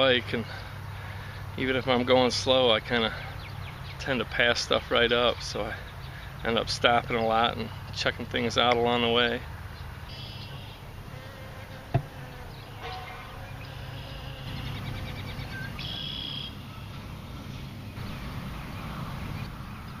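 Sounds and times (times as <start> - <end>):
flying insect buzzing: 10.1 - 16.6.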